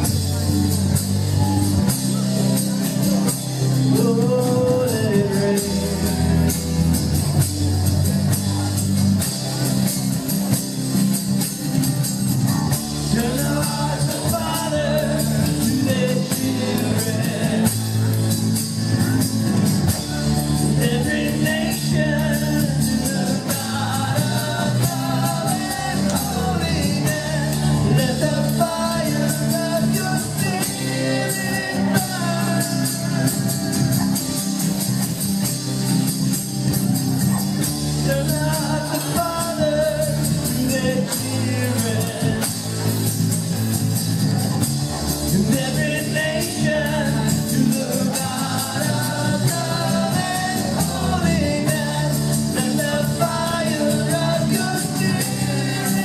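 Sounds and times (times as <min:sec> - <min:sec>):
worship band playing: 0:00.0 - 0:56.0
voices singing: 0:12.7 - 0:34.9, 0:45.3 - 0:56.0.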